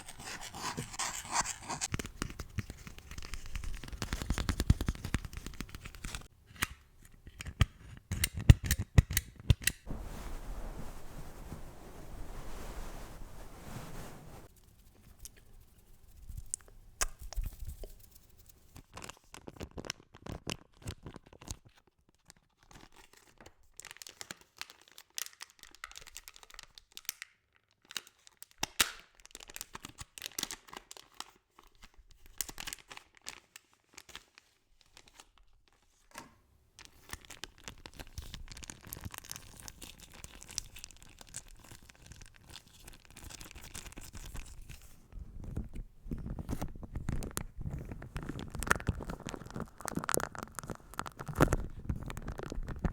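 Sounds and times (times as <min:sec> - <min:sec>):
close crackling and crinkling: 0:00.0 - 0:14.5, 0:36.8 - 0:52.9.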